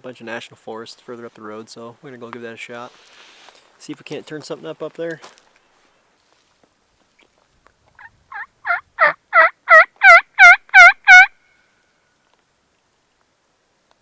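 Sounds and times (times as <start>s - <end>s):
turkey yelping: 8.0s - 11.4s.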